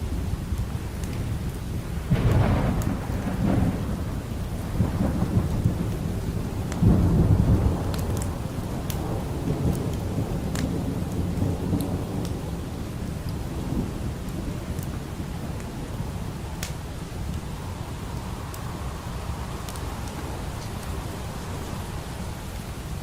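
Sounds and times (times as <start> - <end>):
low rolling thunder: 0.0 - 23.0
steady rain: 0.0 - 23.0
wood fire pops and crackles: 0.4 - 17.6.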